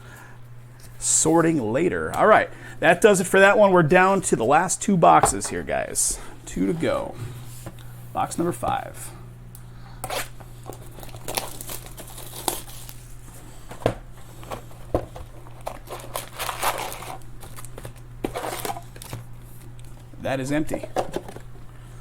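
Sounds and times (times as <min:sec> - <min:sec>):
packaging tearing and crinkling: 0:10.1 - 0:13.2, 0:15.2 - 0:19.3.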